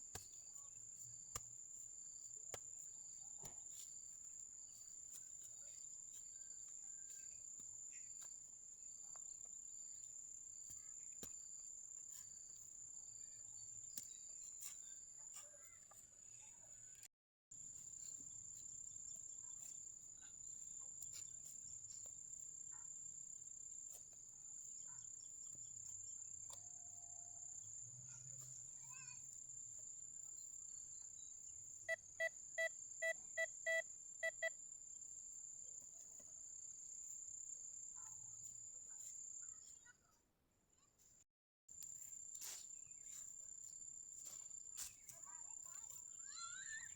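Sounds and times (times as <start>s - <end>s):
metal detector beeps: 31.9s - 34.6s.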